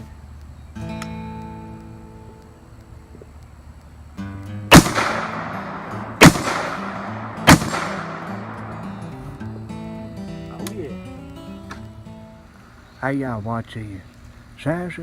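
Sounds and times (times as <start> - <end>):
acoustic guitar music: 0.8 - 3.1, 4.1 - 4.7, 5.5 - 12.6
rifle shots echoing: 4.7 - 9.5.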